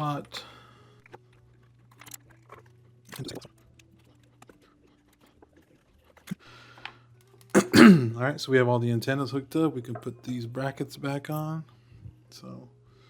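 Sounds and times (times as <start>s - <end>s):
plastic parts clicking and scraping: 0.0s - 7.6s.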